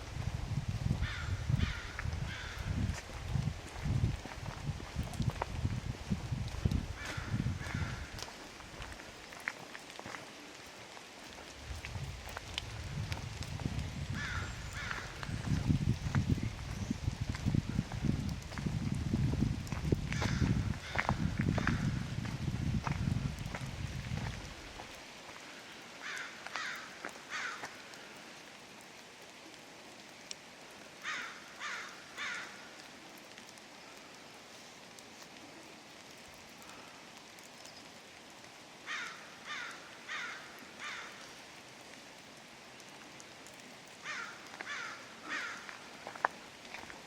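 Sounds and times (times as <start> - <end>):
rain falling on forest: 0.0 - 47.0
bird harsh caw-like calls: 1.0 - 2.8, 7.0 - 8.4, 14.1 - 15.5, 20.2 - 22.0, 25.6 - 28.1, 31.0 - 32.8, 38.9 - 41.4, 44.0 - 46.0.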